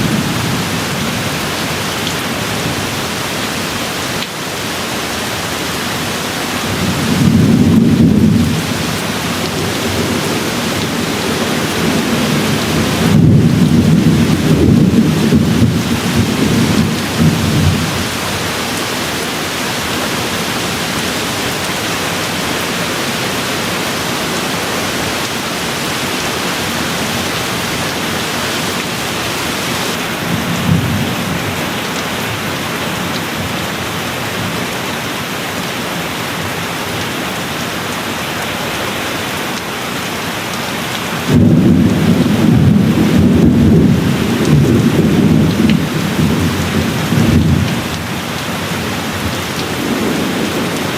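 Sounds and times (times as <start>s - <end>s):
steady rain: 0.0s - 50.9s
thunder rumbling: 6.6s - 21.6s, 41.3s - 48.1s.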